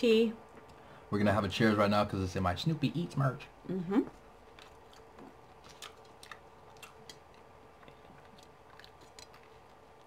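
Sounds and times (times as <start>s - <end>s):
faint chewing: 4.0s - 10.0s.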